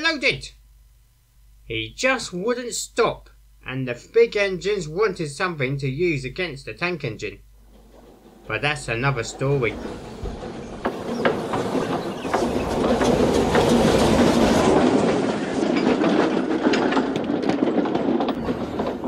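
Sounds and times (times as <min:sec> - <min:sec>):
train rumbling along track: 0:07.6 - 0:19.0
wheels clicking over rail joints: 0:07.6 - 0:19.0.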